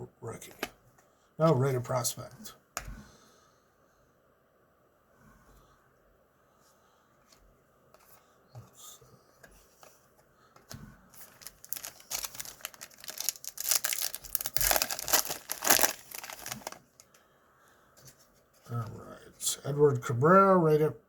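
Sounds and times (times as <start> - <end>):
cards rustling and clicking: 9.4 - 17.2
plastic wrapper crinkling: 11.1 - 17.2.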